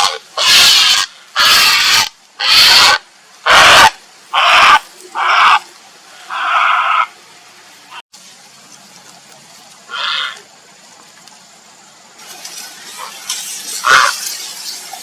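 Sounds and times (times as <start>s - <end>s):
heron harsh calls: 0.0s - 5.6s, 6.3s - 7.1s, 9.9s - 10.4s, 13.8s - 14.2s.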